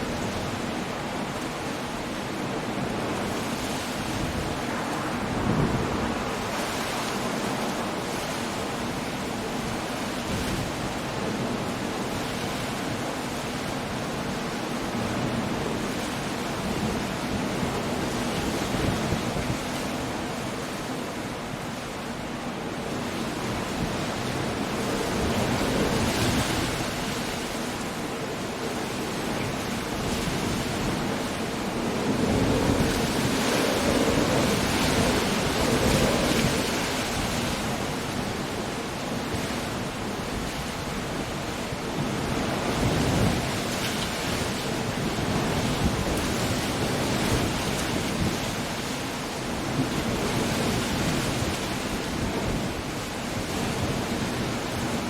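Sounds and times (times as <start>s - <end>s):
rain: 0.0s - 55.0s
wind: 0.0s - 55.0s
surf breaking: 29.8s - 38.3s.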